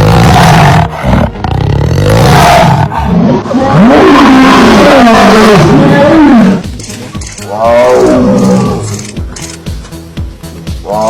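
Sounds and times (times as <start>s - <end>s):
big cat roaring: 0.0s - 6.6s, 7.4s - 9.0s.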